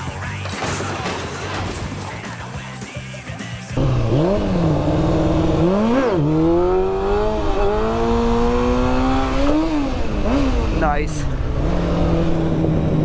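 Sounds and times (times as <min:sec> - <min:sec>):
motorcycle engine accelerating: 0:03.8 - 0:13.0.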